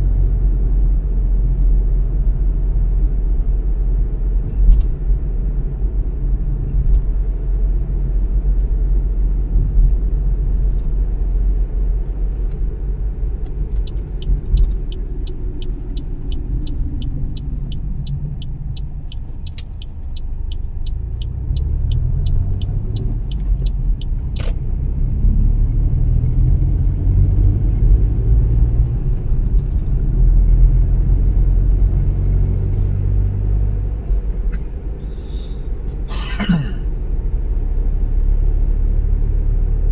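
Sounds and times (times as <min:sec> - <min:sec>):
car engine and tyre rumble: 0:00.0 - 0:39.9
regular ticking: 0:13.4 - 0:24.5.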